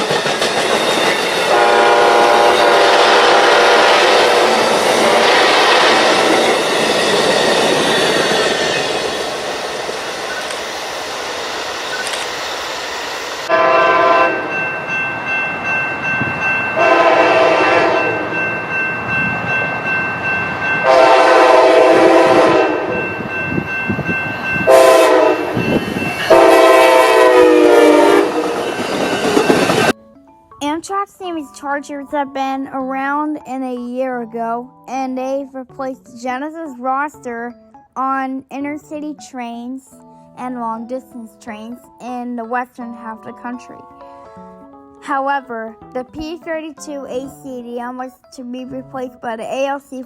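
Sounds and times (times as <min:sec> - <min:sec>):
moving train rushing: 0:00.0 - 0:30.0
locomotive air horn blasts: 0:01.5 - 0:06.4, 0:13.5 - 0:14.6, 0:16.8 - 0:18.4, 0:20.8 - 0:23.0, 0:24.7 - 0:25.6, 0:26.3 - 0:28.8.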